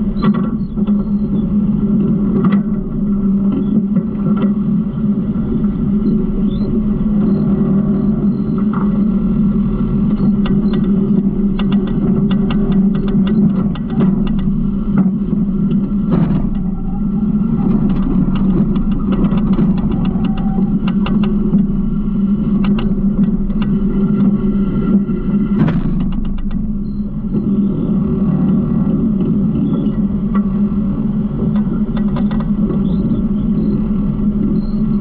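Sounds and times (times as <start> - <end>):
garbage truck engine droning: 0.0 - 35.0
loud scrape: 25.6 - 26.0.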